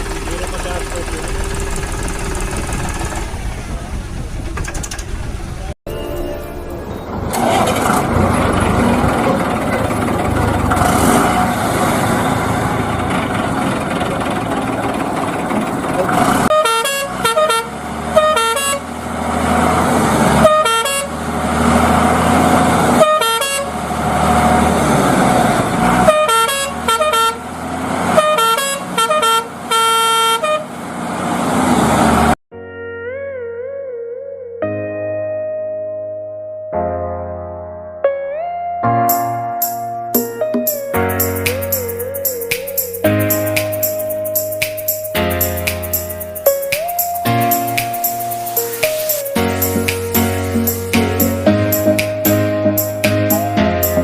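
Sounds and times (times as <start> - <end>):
short horn toots: 16.5 - 18.8.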